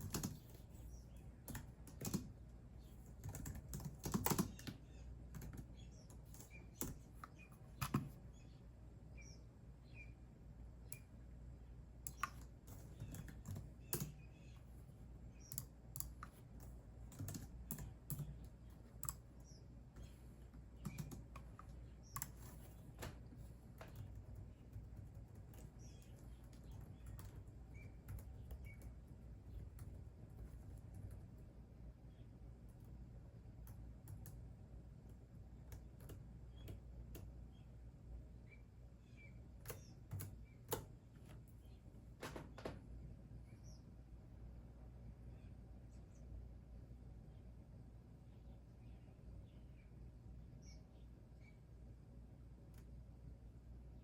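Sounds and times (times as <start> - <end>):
computer keyboard typing: 0.0 - 8.2, 12.0 - 14.3, 15.4 - 20.1, 20.8 - 22.8, 23.8 - 31.5, 39.7 - 40.9.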